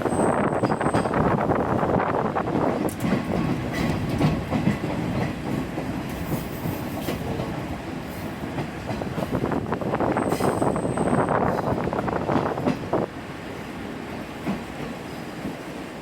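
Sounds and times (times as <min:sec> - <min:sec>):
train running rumble: 0:00.0 - 0:16.0
wheels clicking over rail joints: 0:00.5 - 0:09.8.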